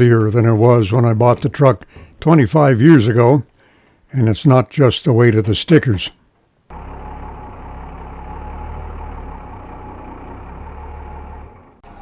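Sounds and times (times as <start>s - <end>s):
pickup truck engine running: 6.7s - 12.0s.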